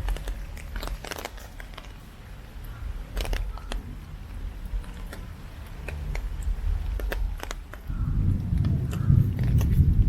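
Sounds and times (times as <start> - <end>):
low storm rumble: 6.3 - 10.0.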